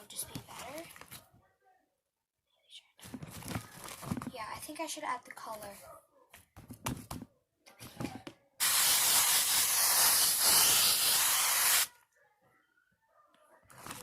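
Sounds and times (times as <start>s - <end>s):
aerosol spray hiss: 8.6s - 11.9s.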